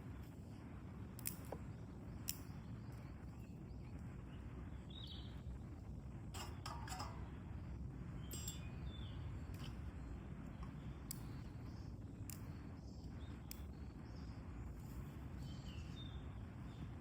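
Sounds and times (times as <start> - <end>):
sharp clicks and snaps: 1.2 - 1.6, 2.2 - 3.0, 12.2 - 12.6, 13.4 - 13.7.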